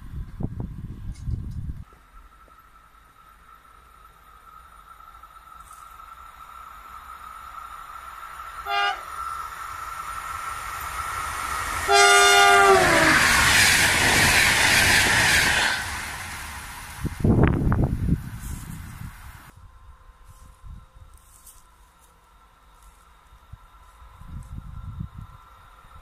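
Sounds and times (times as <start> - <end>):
rough low gusts: 0.0 - 1.9, 6.4 - 21.2, 23.3 - 26.0
electric train whine: 0.0 - 26.0
train horn: 8.6 - 9.2, 11.8 - 13.4.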